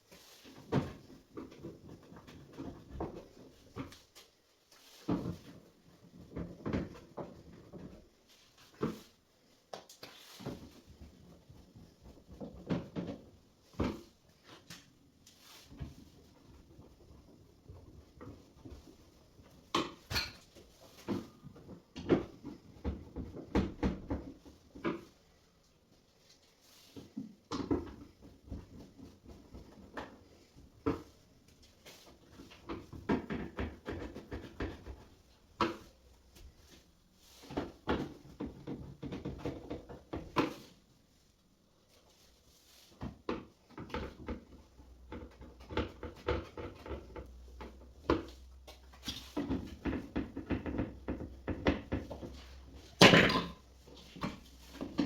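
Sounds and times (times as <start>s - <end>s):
tools knocking and clattering: 49.3s - 55.0s.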